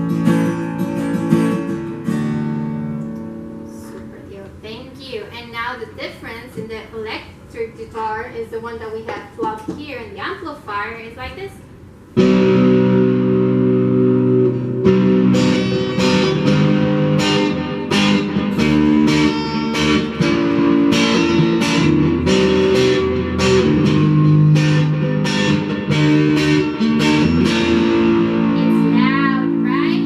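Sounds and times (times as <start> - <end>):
amplified electric guitar strumming: 0.0 - 4.2, 12.1 - 30.0.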